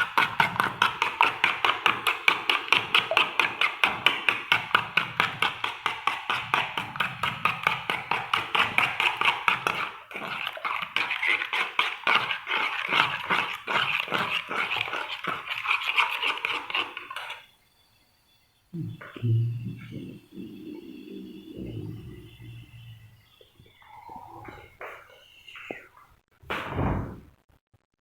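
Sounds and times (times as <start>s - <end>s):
mixture beaten by hand in bowl: 0.0s - 17.5s.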